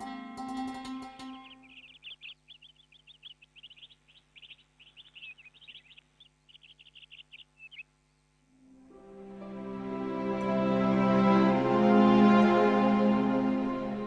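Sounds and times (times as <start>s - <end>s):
small birds chirping: 0.0s - 8.6s
faint steady hum: 0.0s - 14.0s.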